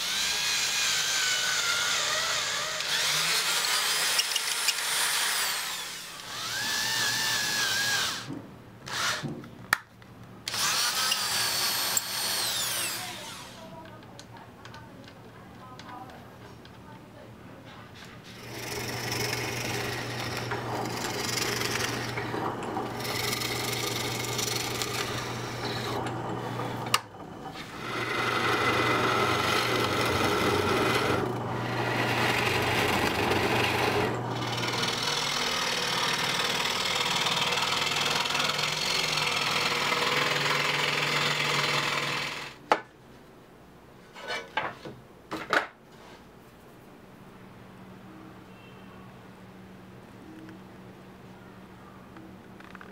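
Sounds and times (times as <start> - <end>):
power tool motor humming: 0.0 - 8.3, 8.9 - 9.3, 10.5 - 13.7, 18.4 - 42.6.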